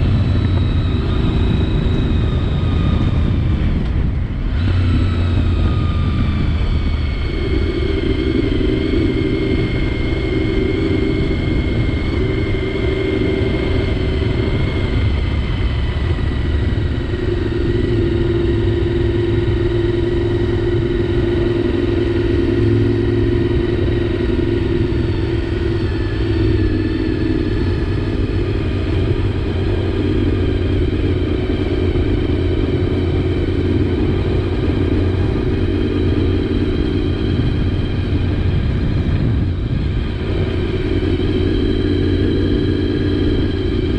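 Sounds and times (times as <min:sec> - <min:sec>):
motorcycle engine cruising: 0:00.0 - 0:43.9
wind rumbling on microphone: 0:00.0 - 0:43.9.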